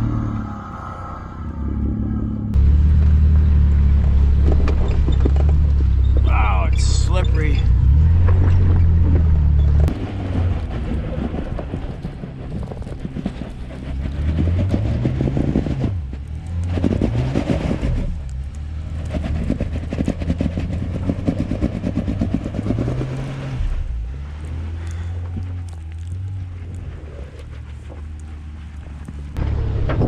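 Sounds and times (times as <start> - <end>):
engine revving under load: 0.0 - 28.2
dense crackle: 16.0 - 29.5.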